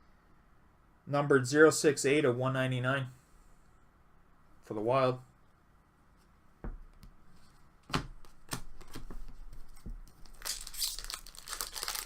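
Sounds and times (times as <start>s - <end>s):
foil wrapper tearing and crinkling: 10.3s - 12.0s.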